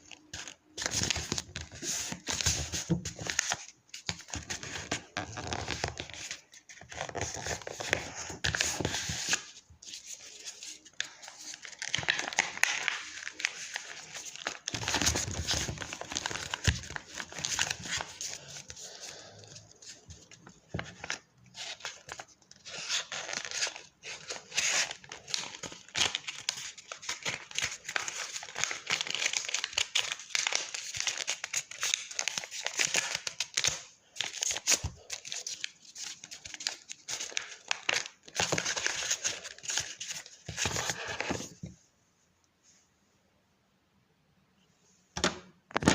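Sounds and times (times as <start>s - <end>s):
paper being folded and creased: 0.0s - 41.7s.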